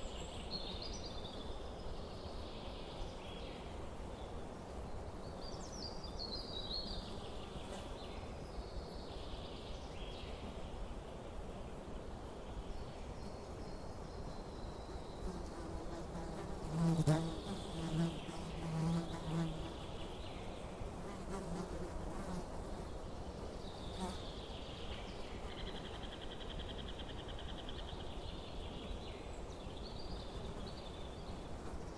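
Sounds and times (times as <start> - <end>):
insect buzzing: 15.2 - 20.1.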